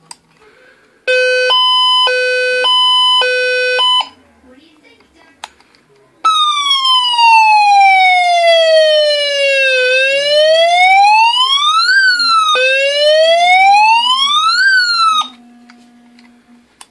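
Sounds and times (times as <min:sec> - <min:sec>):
toy siren wailing: 0:06.3 - 0:15.4.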